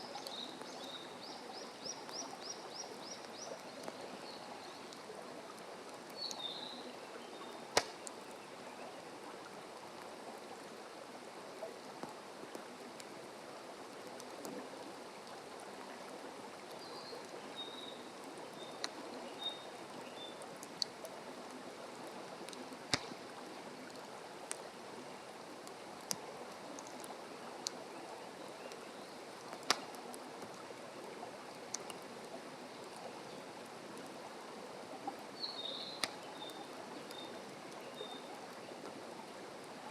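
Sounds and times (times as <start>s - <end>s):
campfire crackling and popping: 7.5s - 8.5s, 18.2s - 19.4s, 20.4s - 30.7s, 31.3s - 33.0s, 35.1s - 37.9s.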